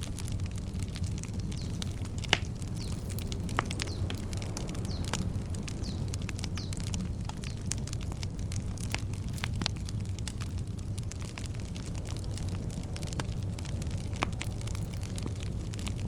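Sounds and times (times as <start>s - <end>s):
campfire crackling and popping: 0.0s - 16.0s
low rumble: 0.0s - 16.0s
bird chirping: 2.6s - 4.1s.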